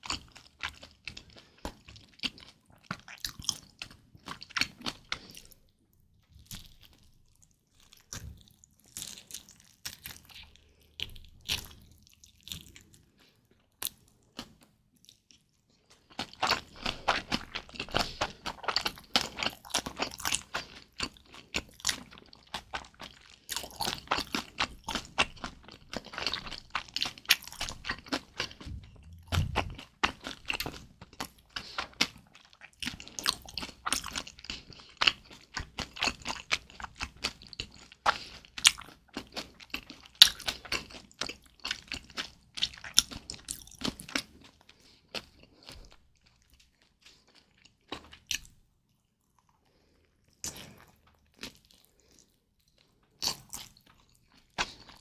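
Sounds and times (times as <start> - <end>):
close-miked chewing: 0.0 - 55.0
low thump: 28.6 - 29.8.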